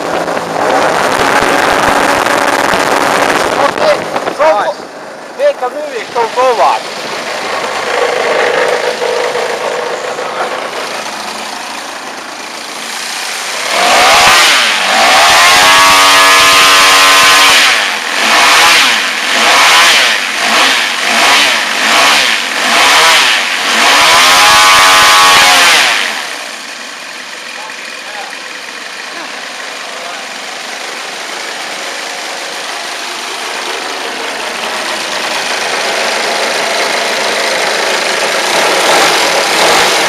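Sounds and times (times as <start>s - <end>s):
model aircraft engine revving: 12.8s - 26.6s, 33.4s - 40.0s.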